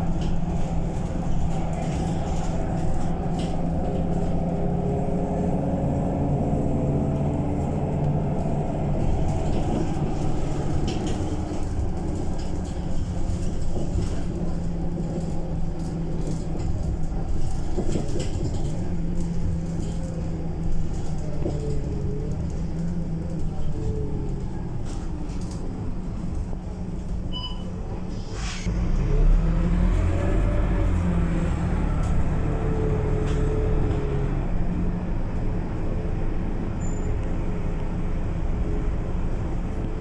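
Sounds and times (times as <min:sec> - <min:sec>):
bus diesel engine droning: 0:00.0 - 0:40.0.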